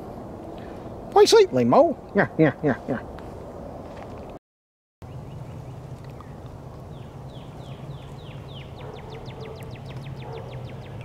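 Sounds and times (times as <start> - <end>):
bird singing falling notes: 5.0 - 11.0.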